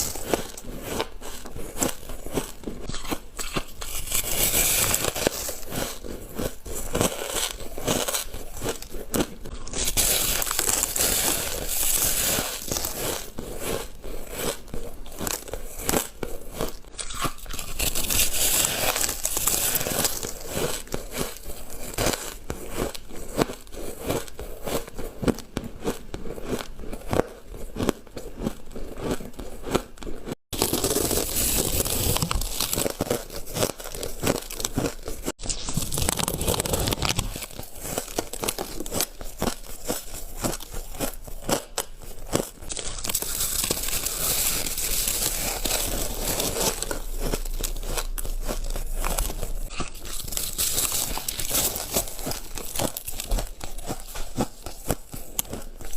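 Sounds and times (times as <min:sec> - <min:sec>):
person crunching ice: 0:00.0 - 0:55.9.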